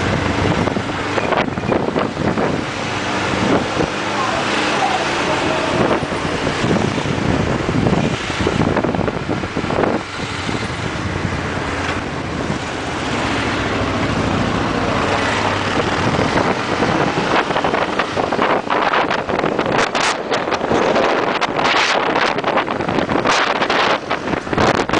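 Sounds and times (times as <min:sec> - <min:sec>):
wind rushing over microphone: 0:00.0 - 0:24.9.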